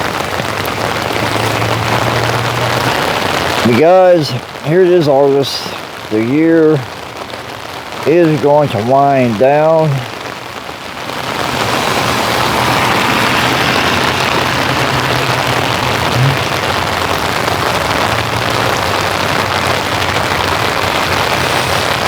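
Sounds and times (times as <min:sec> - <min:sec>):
rain pattering: 0:00.0 - 0:22.0.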